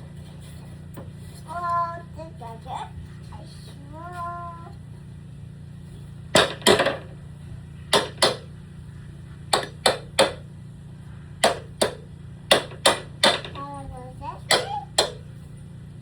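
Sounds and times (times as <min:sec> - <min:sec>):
hammer striking: 0:06.4 - 0:07.1, 0:07.9 - 0:08.5, 0:09.5 - 0:10.4, 0:11.4 - 0:13.6, 0:14.4 - 0:15.2.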